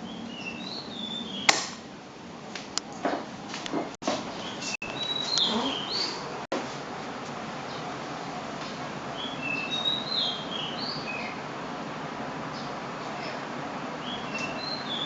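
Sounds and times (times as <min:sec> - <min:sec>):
bird chirping: 0:00.0 - 0:01.5, 0:04.2 - 0:06.3, 0:09.1 - 0:11.4, 0:14.0 - 0:15.0
ceiling fan rushing: 0:00.0 - 0:15.0.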